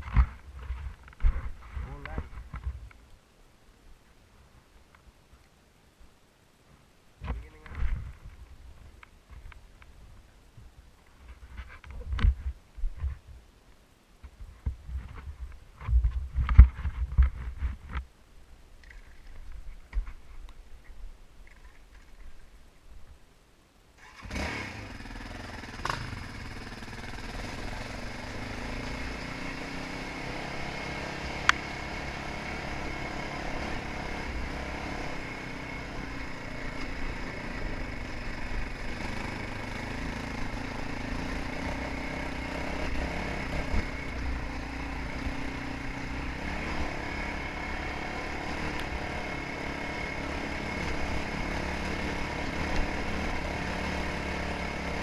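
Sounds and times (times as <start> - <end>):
dirt bike engine running: 24.3 - 55.0.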